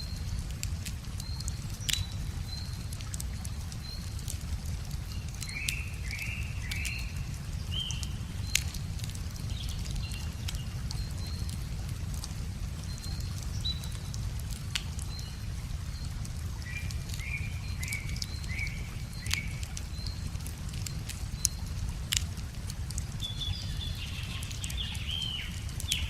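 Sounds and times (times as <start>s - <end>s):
wood fire crackling and popping: 0.0s - 26.0s
birds chirping: 23.0s - 26.0s.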